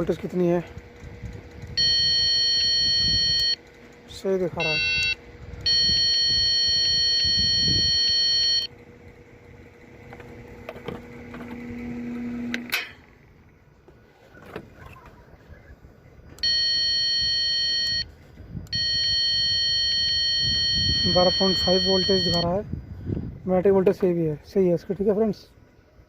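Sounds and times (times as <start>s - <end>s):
low hum: 0.0s - 26.0s
electronic warning buzzer: 1.6s - 8.8s, 16.4s - 22.6s.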